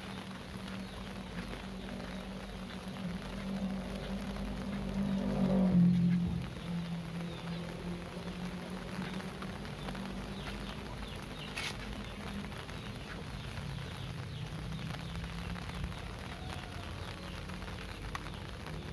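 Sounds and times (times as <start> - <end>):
heavy rain falling: 0.0 - 18.9.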